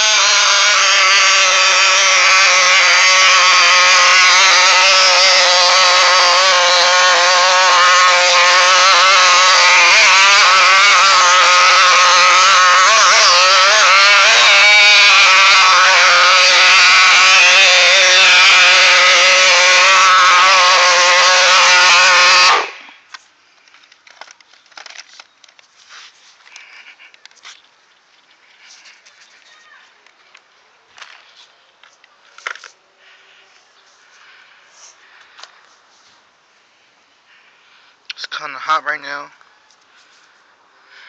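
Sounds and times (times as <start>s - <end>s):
small two-stroke engine running: 0.0s - 22.8s.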